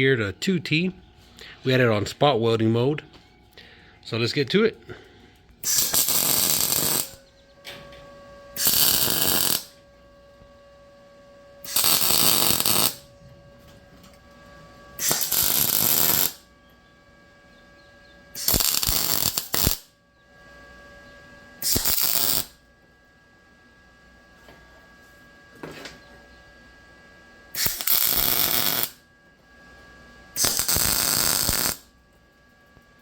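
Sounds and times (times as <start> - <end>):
faint steady hum: 0.0 - 33.0
welder arc crackling: 5.6 - 7.3, 8.6 - 9.9, 11.6 - 13.1, 15.0 - 16.4, 18.4 - 19.9, 21.6 - 22.6, 27.6 - 29.0, 30.4 - 31.9.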